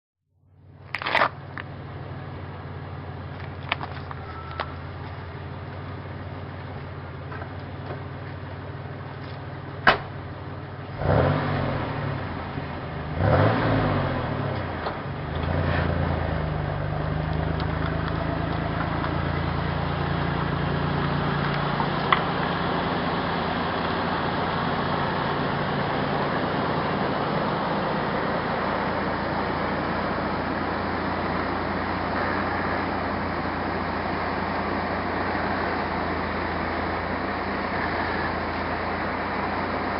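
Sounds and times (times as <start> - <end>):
truck engine idling and revving: 0.4 - 39.9.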